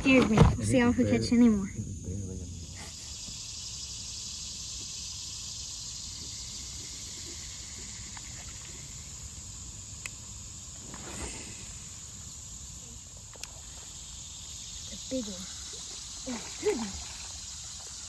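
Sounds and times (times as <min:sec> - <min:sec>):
insects droning: 0:00.0 - 0:18.0
faint click: 0:13.3 - 0:13.6.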